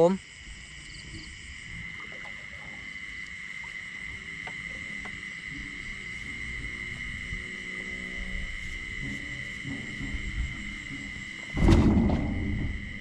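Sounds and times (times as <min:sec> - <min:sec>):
crickets trilling: 0:00.0 - 0:13.0
faint low rumble: 0:00.6 - 0:13.0.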